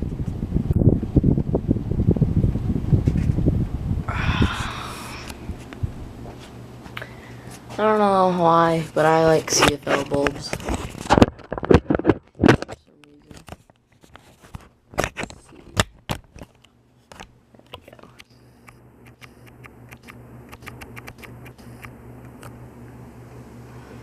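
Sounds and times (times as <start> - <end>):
low electrical hum: 0.0 - 24.0
ceiling fan parts clicking: 5.1 - 22.6.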